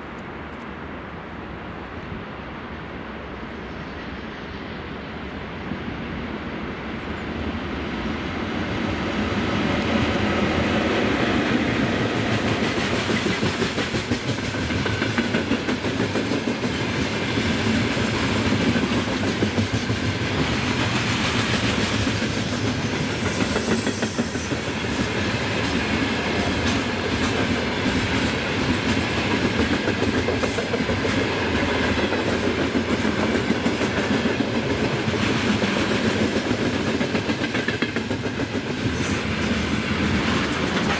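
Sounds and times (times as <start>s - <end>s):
train wheels clattering over rails: 9.7s - 40.9s.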